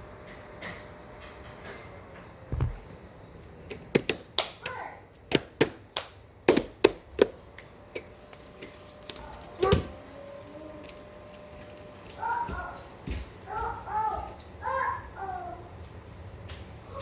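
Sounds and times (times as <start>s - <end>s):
knock with short squeak: 2.5s - 3.0s.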